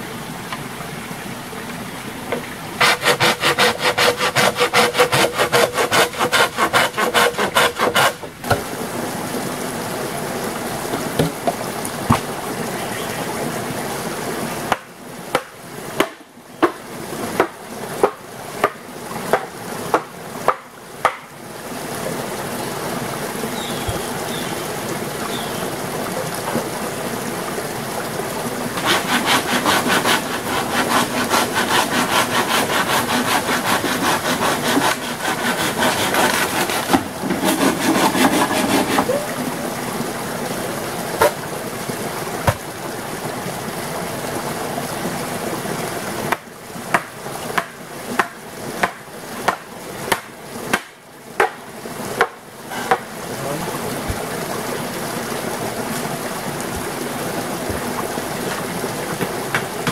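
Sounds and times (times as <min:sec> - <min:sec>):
hand saw cutting wood: 0:02.3 - 0:08.6, 0:28.8 - 0:39.2, 0:52.2 - 0:53.1
sharp knocks on wood: 0:11.2 - 0:12.3, 0:17.4 - 0:21.2, 0:46.3 - 0:51.6.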